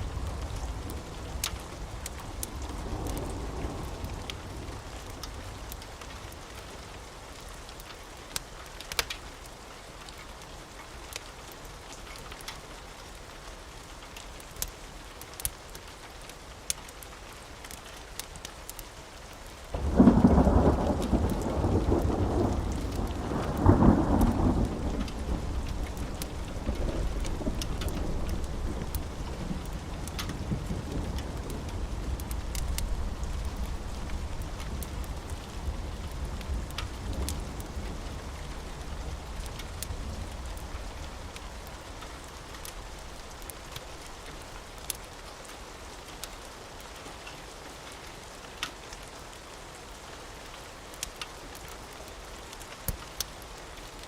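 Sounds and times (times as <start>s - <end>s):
thunder clap and rumble: 0.0s - 5.8s, 19.8s - 44.5s
steady rain: 0.0s - 54.0s
wood fire crackling: 0.0s - 54.0s.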